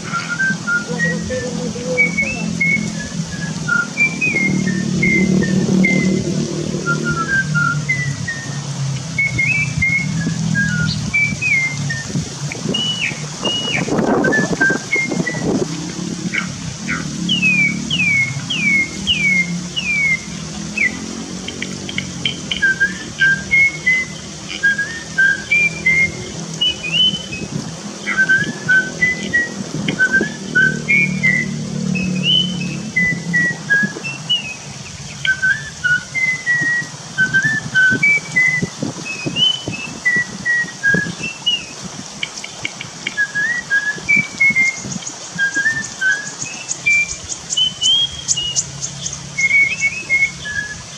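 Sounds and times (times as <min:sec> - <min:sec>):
bird whistling: 0:00.0 - 0:15.7, 0:16.3 - 0:50.9.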